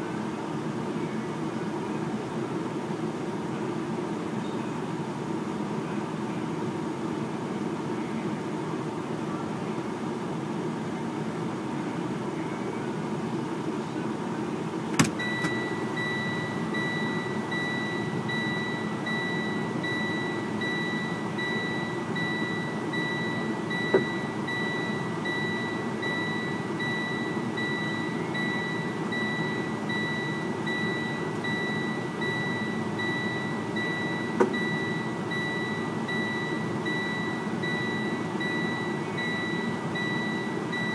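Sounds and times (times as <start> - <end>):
vehicle engine and road noise: 0.0 - 40.9
continuous high-pitched beep: 15.2 - 40.9.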